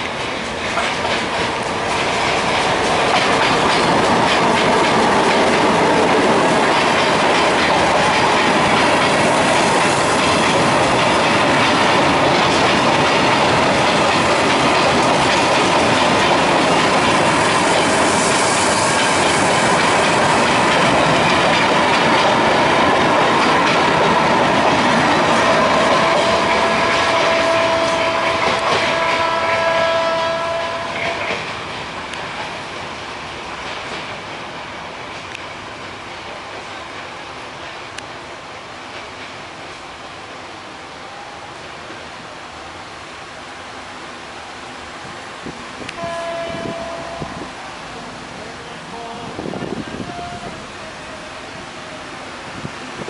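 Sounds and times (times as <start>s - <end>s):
train wheels clattering over rail joints: 0.0s - 38.0s.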